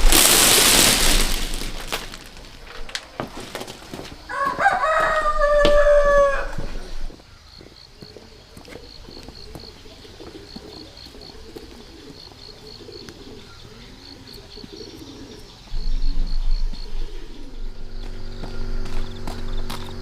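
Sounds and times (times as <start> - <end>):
doves cooing: 8.0 - 20.0
loud low rumble: 15.7 - 20.0.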